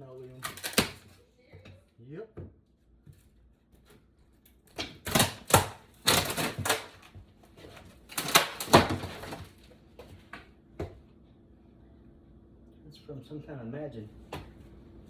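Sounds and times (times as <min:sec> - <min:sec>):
linoleum cracking as pried up: 0:00.0 - 0:01.2, 0:03.1 - 0:10.4.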